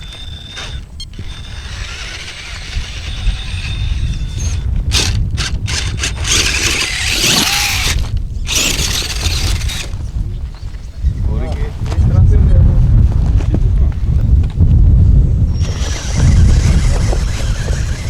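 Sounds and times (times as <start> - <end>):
remote control car motor whining: 0.0 - 10.0, 15.5 - 18.0
tyres scrabbling on loose dirt: 0.0 - 10.7, 15.6 - 18.0
wind rumble on microphone: 0.0 - 18.0.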